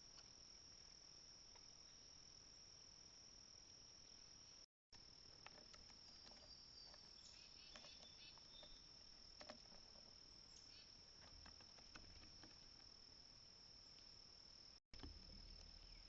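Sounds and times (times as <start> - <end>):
high-pitched insect trill: 0.0 - 16.0
small clicks and taps: 5.3 - 7.0, 9.3 - 10.1.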